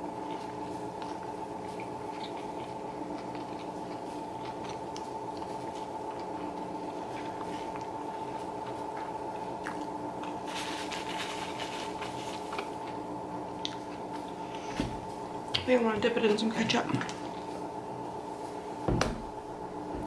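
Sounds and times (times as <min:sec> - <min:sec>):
wet chewing mouth sounds: 0:00.0 - 0:10.4
steady hum: 0:00.0 - 0:20.0.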